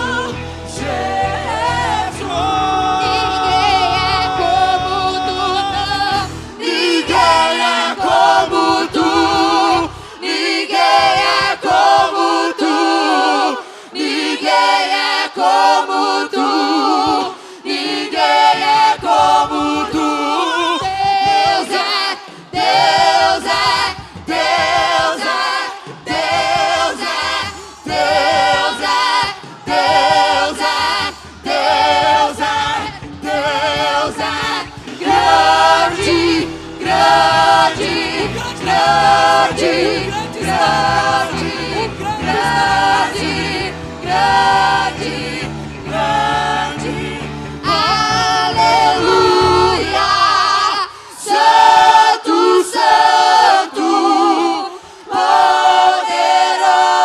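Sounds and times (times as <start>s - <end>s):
low bass accompaniment: 0.0s - 10.1s, 26.1s - 50.5s
church choir singing: 0.0s - 57.0s.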